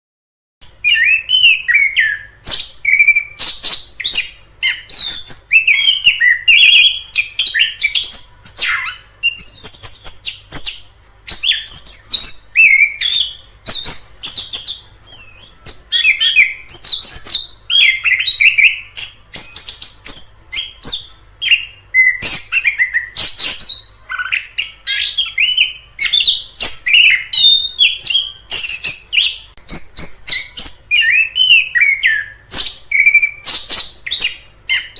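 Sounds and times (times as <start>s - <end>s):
thrush singing whistled phrases: 0.6s - 34.9s.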